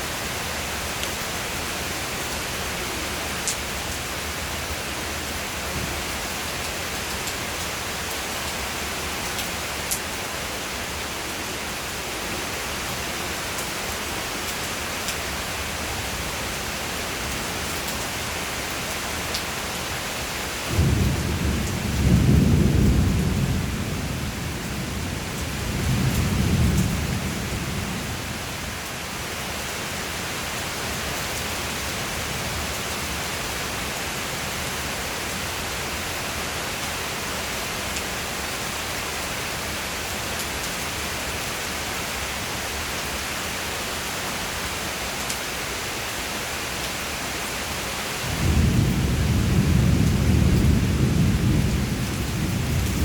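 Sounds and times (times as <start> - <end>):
steady rain: 0.0 - 53.0
thunder rumbling: 20.7 - 28.3, 48.3 - 53.0.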